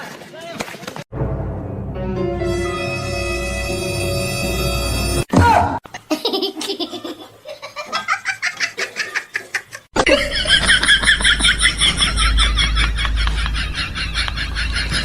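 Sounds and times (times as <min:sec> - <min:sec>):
music: 0:01.1 - 0:05.3
high-pitched pulsing laughter: 0:06.1 - 0:15.0
person laughing hard: 0:06.1 - 0:15.0.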